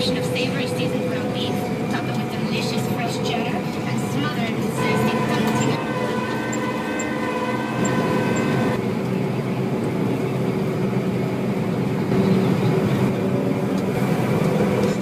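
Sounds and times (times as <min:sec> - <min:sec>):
whining tones: 0:00.0 - 0:09.1
combine harvester drone: 0:00.0 - 0:15.0.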